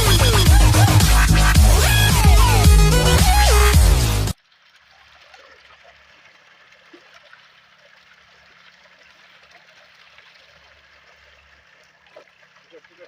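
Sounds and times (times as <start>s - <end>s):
trickle of running water: 4.3s - 13.0s.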